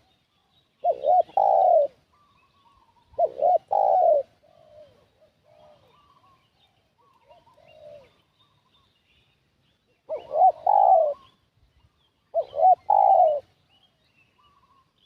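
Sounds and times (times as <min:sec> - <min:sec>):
small birds chirping: 0:00.0 - 0:15.0
dove cooing: 0:00.8 - 0:08.3, 0:10.1 - 0:11.4, 0:12.3 - 0:13.6.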